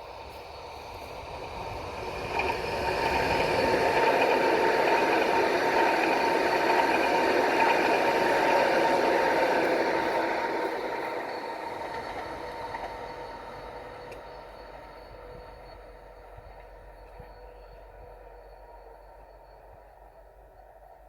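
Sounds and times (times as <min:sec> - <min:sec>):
train wheels rumbling on rails: 0:00.0 - 0:21.0
train whine: 0:00.0 - 0:21.0.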